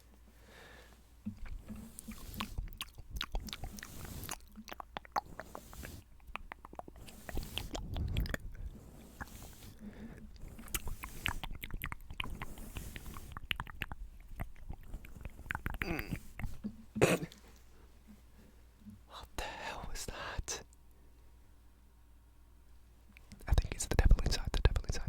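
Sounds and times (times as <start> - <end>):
brush strokes on microphone: 1.2 - 2.8, 3.4 - 4.5, 5.2 - 6.2, 6.9 - 11.6, 12.2 - 13.4
wet mouth clicks and smacks: 1.2 - 9.7, 10.3 - 18.2.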